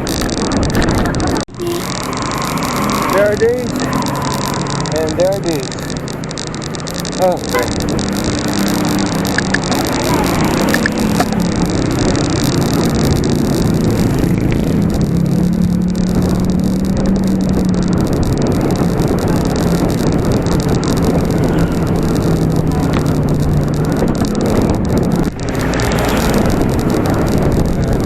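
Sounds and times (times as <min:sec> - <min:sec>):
road traffic noise: 0:00.0 - 0:28.0
vehicle engine humming: 0:00.0 - 0:28.0
wind on microphone: 0:00.0 - 0:28.0.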